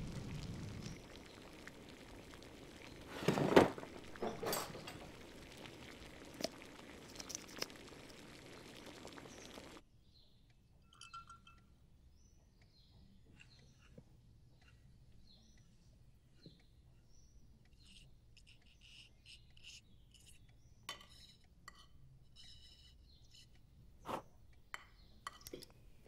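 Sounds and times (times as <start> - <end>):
steady hiss: 0.0 - 9.8
glassy clinking burst: 0.6 - 9.8, 10.9 - 11.7.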